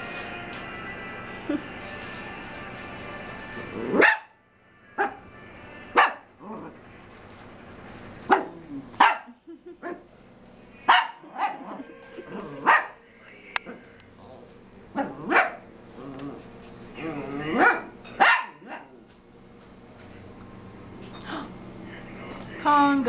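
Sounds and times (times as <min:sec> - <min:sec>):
small dogs barking: 0:03.9 - 0:04.4, 0:05.0 - 0:05.3, 0:05.9 - 0:06.4, 0:08.2 - 0:10.1, 0:10.8 - 0:13.0, 0:14.9 - 0:15.7, 0:17.4 - 0:19.0.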